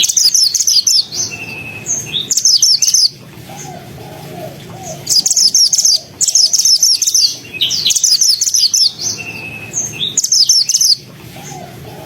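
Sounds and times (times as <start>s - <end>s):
bird singing rapid chattering notes: 0.0s - 12.0s.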